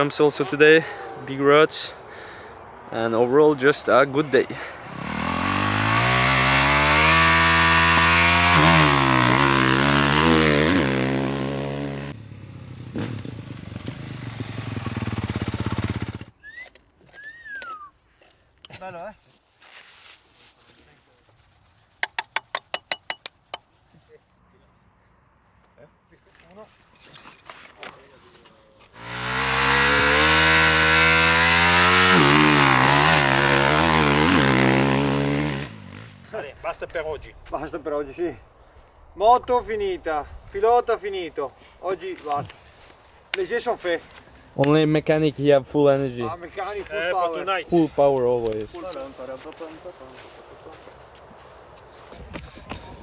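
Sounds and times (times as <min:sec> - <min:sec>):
dirt bike engine revving: 0:04.5 - 0:16.4, 0:29.0 - 0:38.4
fast rattling engine: 0:04.8 - 0:16.3, 0:29.0 - 0:36.2.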